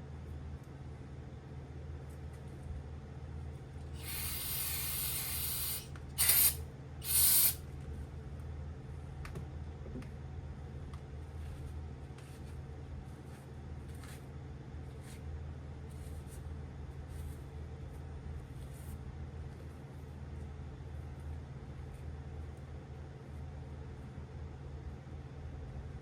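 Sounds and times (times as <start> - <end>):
pressurised spray hissing: 4.0 - 7.6.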